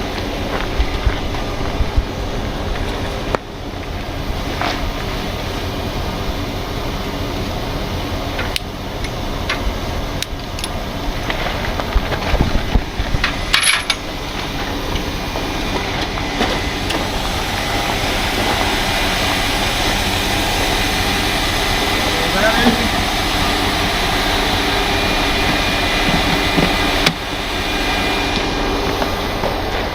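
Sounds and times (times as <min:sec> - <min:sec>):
truck diesel engine running: 0:00.0 - 0:29.9
metallic knocks and clanks: 0:13.2 - 0:14.5.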